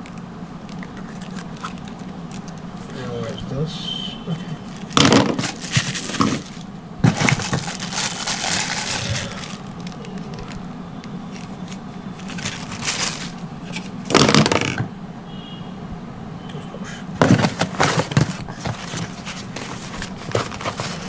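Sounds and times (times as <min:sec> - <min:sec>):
packaging rustling and crinkling: 0:00.5 - 0:03.4, 0:04.6 - 0:14.6, 0:17.2 - 0:21.0.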